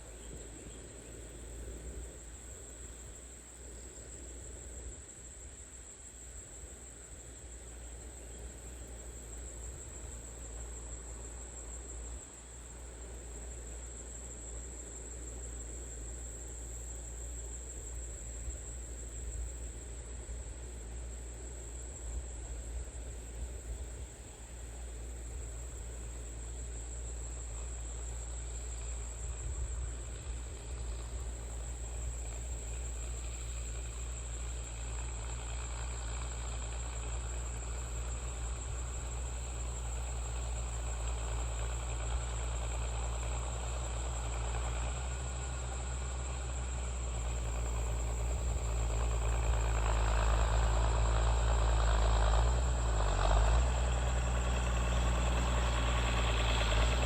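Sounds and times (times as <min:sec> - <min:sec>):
insects chirring: 0:00.0 - 0:57.0
tractor engine running: 0:07.9 - 0:57.0.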